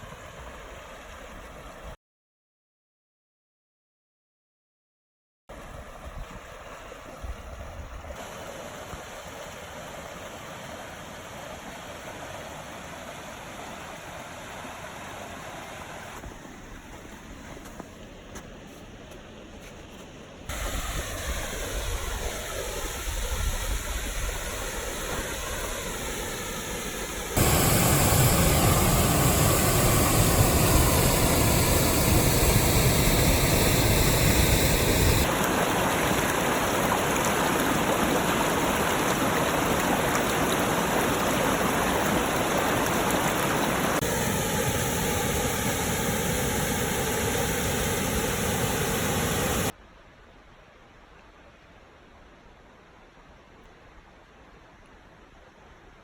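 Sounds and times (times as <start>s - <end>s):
waterfall rushing: 20.5s - 49.8s.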